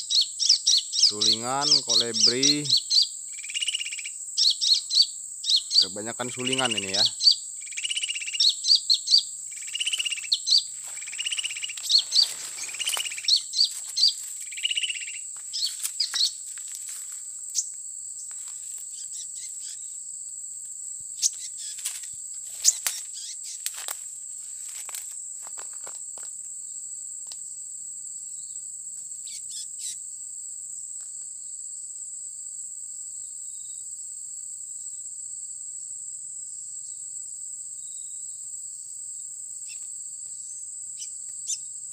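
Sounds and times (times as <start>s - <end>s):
small birds chirping: 0.0s - 20.0s, 21.0s - 23.9s, 29.2s - 30.0s, 39.6s - 41.8s
insect drone: 0.0s - 41.9s.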